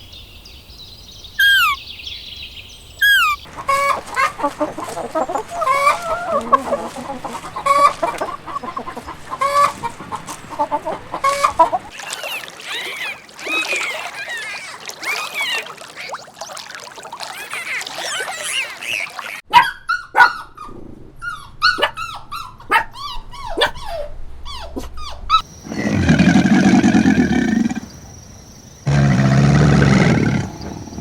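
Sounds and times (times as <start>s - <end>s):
long deep animal calls: 10.6s - 16.2s
dog barking and yelping: 17.7s - 25.5s.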